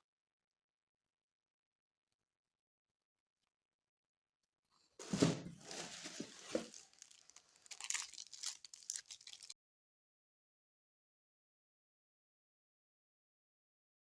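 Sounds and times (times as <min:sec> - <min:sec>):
packaging tearing and crinkling: 0:05.6 - 0:09.6.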